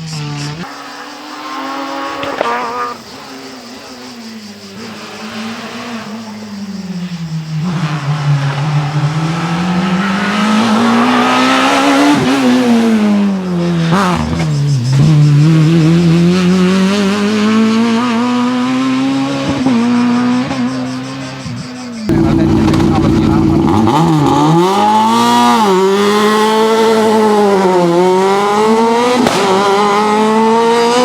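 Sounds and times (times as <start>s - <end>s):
rally car engine accelerating: 0.0s - 31.0s
exhaust pop: 22.1s - 25.1s, 29.1s - 30.0s.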